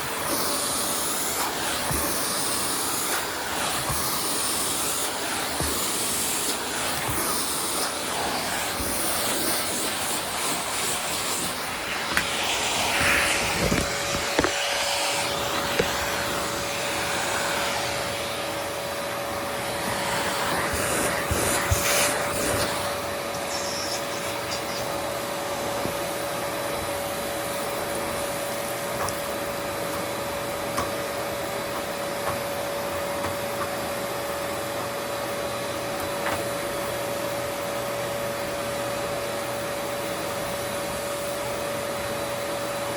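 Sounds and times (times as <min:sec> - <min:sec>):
vacuum cleaner running: 0:00.0 - 0:42.9
steady whine: 0:01.4 - 0:26.0
vacuum head knocking: 0:11.4 - 0:16.6.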